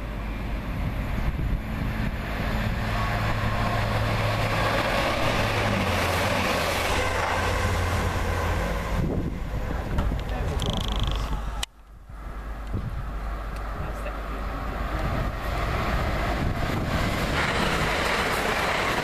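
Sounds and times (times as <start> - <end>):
train passing at speed: 0.0 - 10.6, 11.3 - 19.0.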